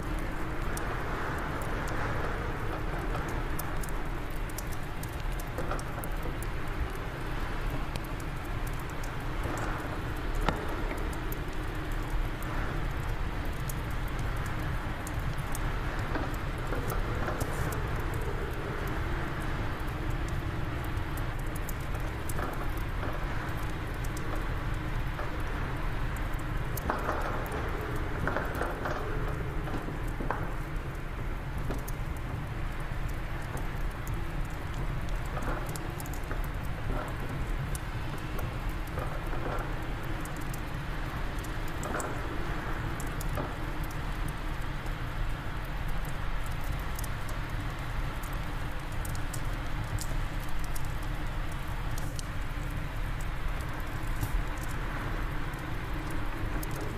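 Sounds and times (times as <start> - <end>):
wood fire crackling and popping: 0.0 - 56.9.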